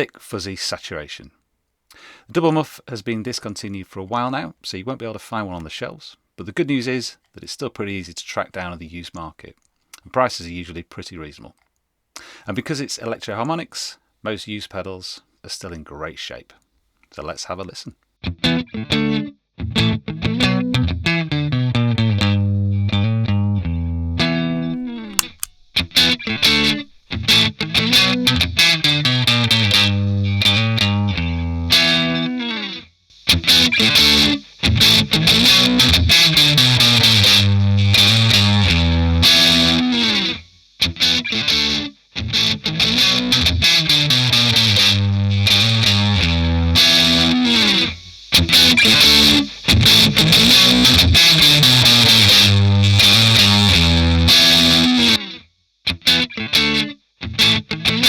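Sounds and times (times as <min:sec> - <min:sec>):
distorted electric guitar riffs: 0:18.3 - 0:58.0.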